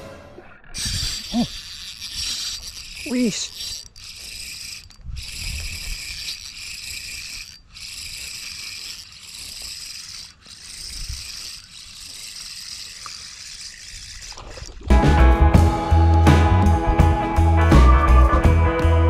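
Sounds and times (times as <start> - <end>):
fishing reel gears whirring: 0.6 - 15.3.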